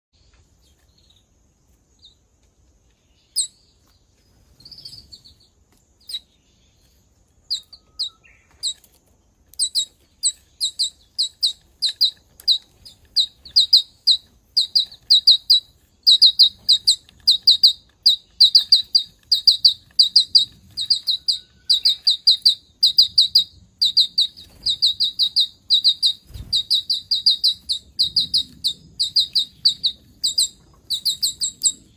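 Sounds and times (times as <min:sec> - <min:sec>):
small birds chirping: 0:00.2 - 0:31.9.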